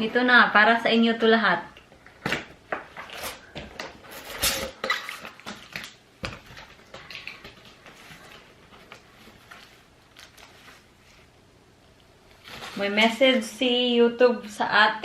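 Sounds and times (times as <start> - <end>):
cardboard packaging rustling: 2.0 - 11.3, 12.2 - 13.2.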